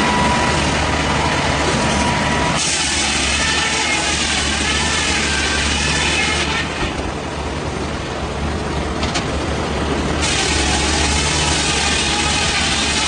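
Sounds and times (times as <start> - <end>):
saw cutting through log: 2.6 - 6.9, 10.2 - 13.0
saw engine hum: 8.8 - 13.0.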